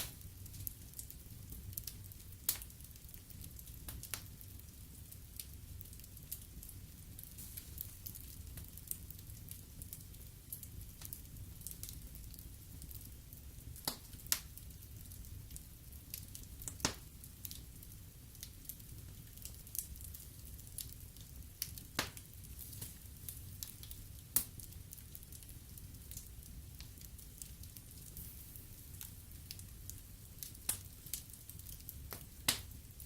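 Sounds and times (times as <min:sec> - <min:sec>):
low steady fire rumble: 0:00.0 - 0:33.0
wood fire crackling and popping: 0:00.0 - 0:33.0.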